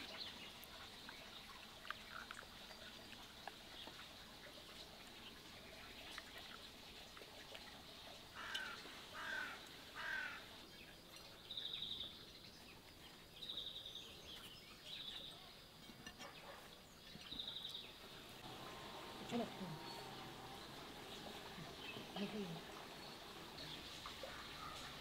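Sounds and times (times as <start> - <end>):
harsh bird calls: 18.4 - 25.0.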